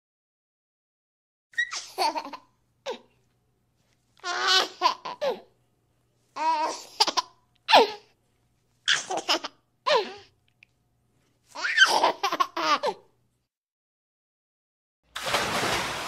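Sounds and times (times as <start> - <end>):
baby laughing: 1.6 - 3.0, 4.2 - 5.5, 6.4 - 8.0, 8.9 - 10.3, 11.5 - 13.1.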